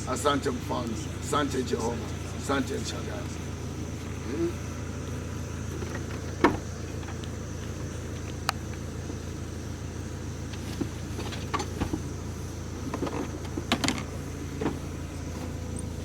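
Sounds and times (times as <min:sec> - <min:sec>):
car engine running: 0:00.0 - 0:16.0
light clicks and knocks: 0:04.9 - 0:09.4, 0:10.4 - 0:15.9.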